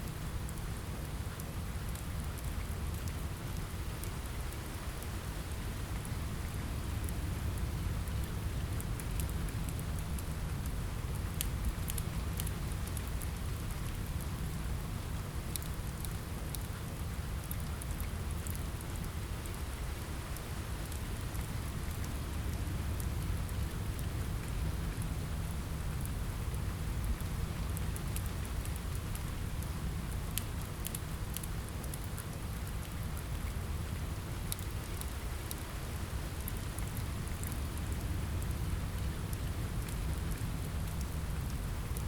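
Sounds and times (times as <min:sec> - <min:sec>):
rain on a window: 0:00.0 - 0:42.0.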